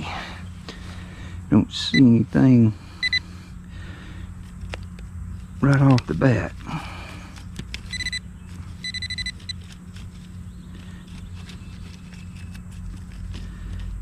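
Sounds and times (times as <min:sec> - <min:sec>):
metal detector beeping: 0:03.0 - 0:03.2, 0:07.9 - 0:09.6.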